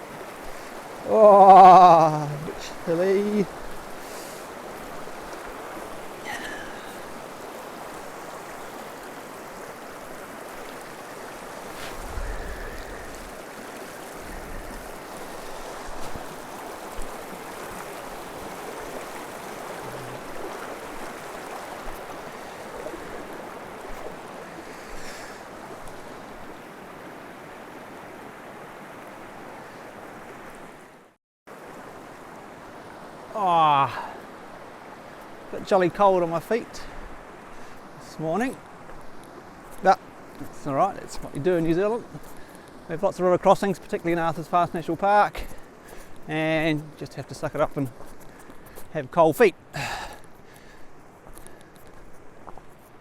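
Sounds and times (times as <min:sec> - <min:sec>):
feet wading through water: 0:00.0 - 0:30.2, 0:45.3 - 0:48.9
river rushing over stones: 0:00.0 - 0:53.0.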